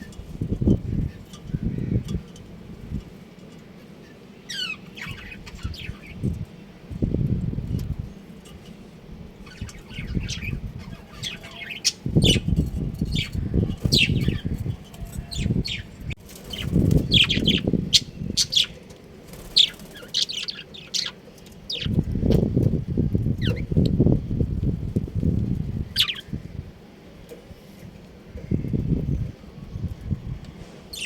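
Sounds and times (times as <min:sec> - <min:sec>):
small birds chirping: 0:00.0 - 0:24.1, 0:25.2 - 0:31.0
low rustling noise: 0:11.9 - 0:31.0.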